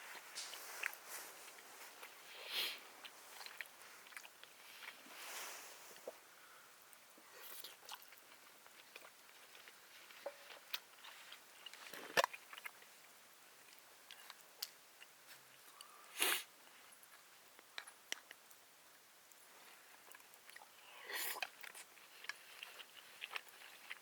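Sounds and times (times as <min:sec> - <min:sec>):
person chewing: 0:00.4 - 0:05.0, 0:07.4 - 0:12.8, 0:19.9 - 0:24.0.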